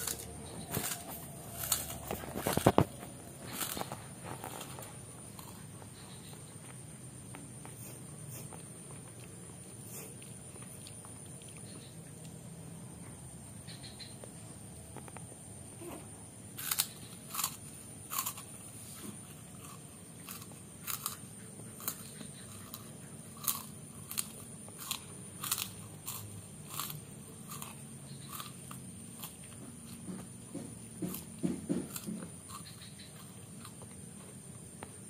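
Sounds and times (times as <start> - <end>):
child crunching crackers: 0.0 - 5.9, 16.6 - 30.0.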